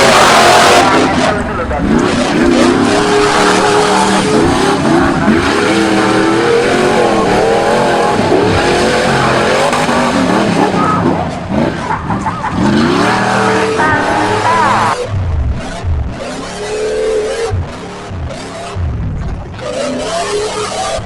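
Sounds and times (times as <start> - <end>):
off-road vehicle engine revving: 0.0 - 21.0.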